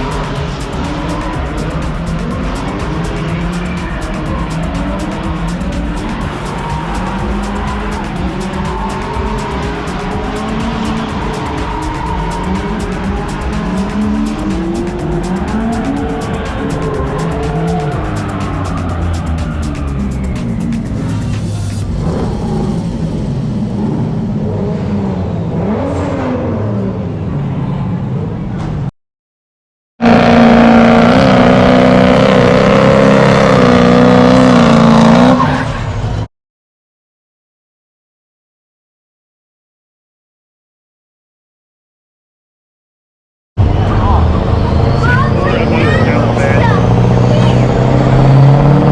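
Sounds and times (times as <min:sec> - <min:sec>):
music with fast beat: 0:00.0 - 0:21.9
car engines: 0:00.0 - 0:28.9, 0:30.0 - 0:36.3, 0:43.6 - 0:48.9.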